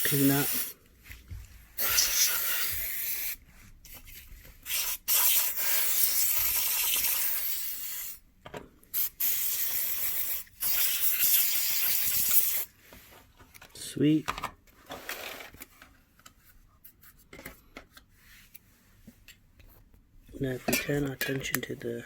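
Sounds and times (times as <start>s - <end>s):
compressed air spray hissing: 0.0s - 0.8s, 1.8s - 3.4s, 4.6s - 8.2s, 8.9s - 12.7s.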